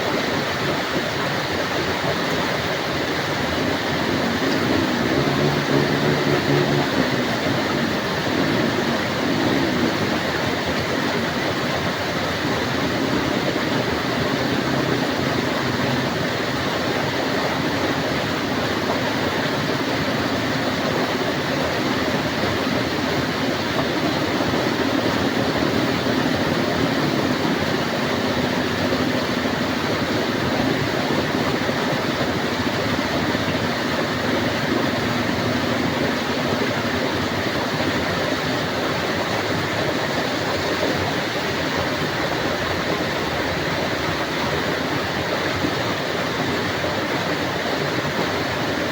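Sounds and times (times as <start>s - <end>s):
heavy rain falling: 0.1s - 48.9s.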